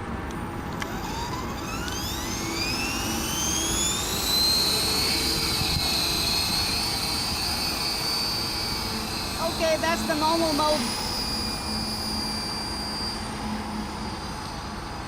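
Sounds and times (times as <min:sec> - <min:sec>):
rc helicopter motor whine: 0:00.0 - 0:15.0
wind noise on microphone: 0:03.5 - 0:09.6.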